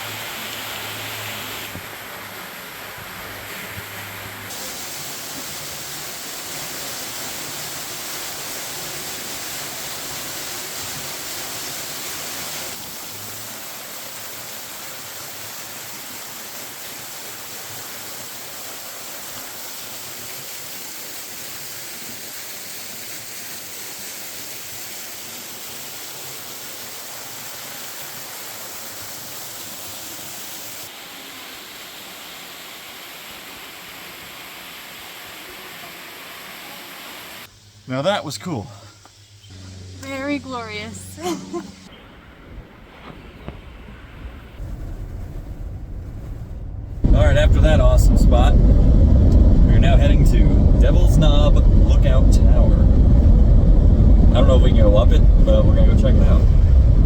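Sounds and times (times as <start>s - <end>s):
waterfall rushing and splashing: 0.0s - 37.5s.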